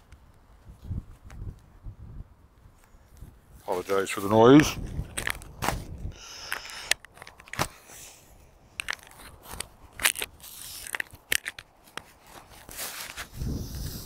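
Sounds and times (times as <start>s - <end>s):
microphone handling noise: 0.7s - 7.8s, 12.3s - 14.0s.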